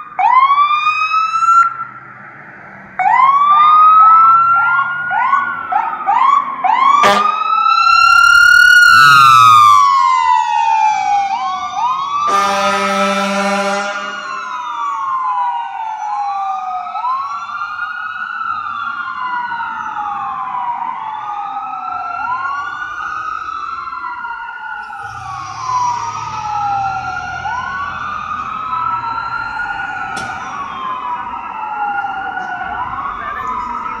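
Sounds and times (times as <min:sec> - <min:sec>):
fire engine siren wailing: 0:00.0 - 0:34.0
air horn blast: 0:07.0 - 0:07.4, 0:12.3 - 0:14.4.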